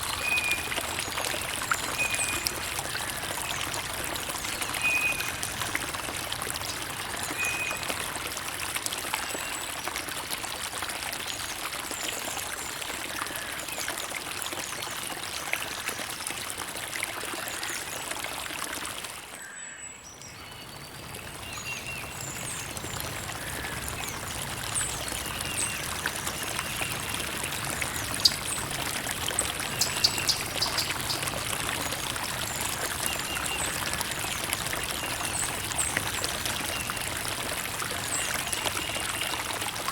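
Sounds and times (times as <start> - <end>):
creek water trickling: 0.0 - 39.9
water splashes: 21.1 - 39.9.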